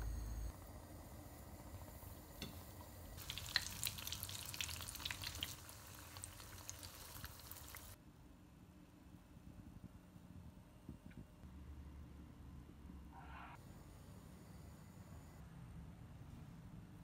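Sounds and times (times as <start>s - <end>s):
fish frying in oil: 3.2s - 8.0s.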